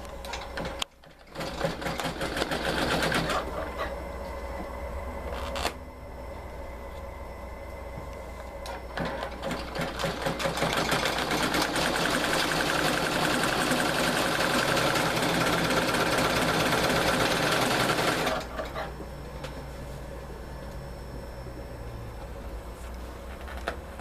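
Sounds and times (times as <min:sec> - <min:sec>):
embroidery machine stitching: 0:00.3 - 0:03.7, 0:09.0 - 0:18.9.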